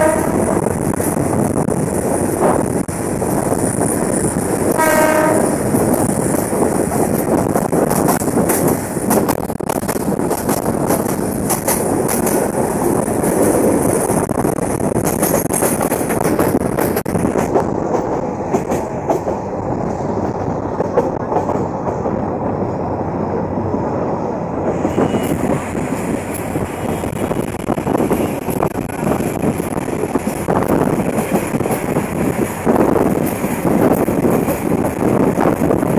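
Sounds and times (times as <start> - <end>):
sharp clicks of train wheels: 0.0 - 22.8, 24.6 - 35.9
train wheels rumbling on rails: 0.0 - 35.9.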